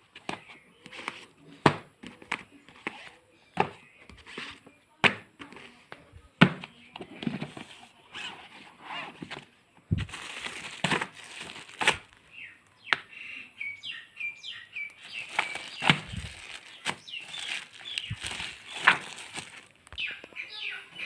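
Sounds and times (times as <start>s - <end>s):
books and packaging rustling: 0.0s - 12.6s, 14.8s - 20.1s
small birds chirping: 0.1s - 1.6s, 6.6s - 21.0s.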